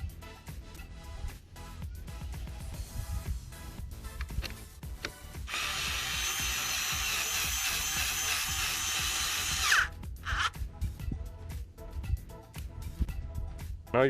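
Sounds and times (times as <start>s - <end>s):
background music: 0.0s - 14.0s
power drill driving bolt: 4.2s - 10.5s.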